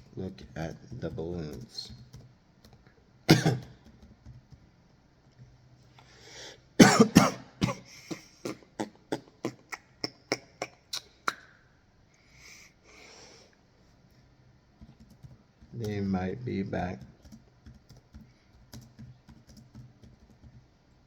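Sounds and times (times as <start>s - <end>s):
man coughing: 3.3s - 3.8s, 6.8s - 11.5s.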